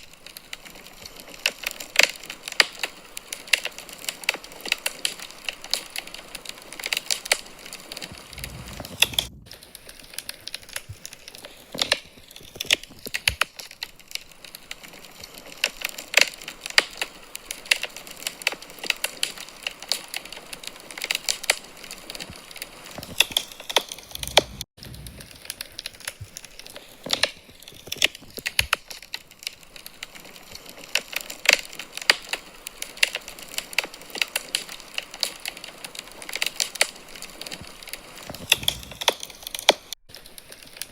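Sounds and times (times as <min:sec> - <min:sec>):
wood fire crackling: 0:00.0 - 0:40.9
low rumble: 0:08.1 - 0:09.8.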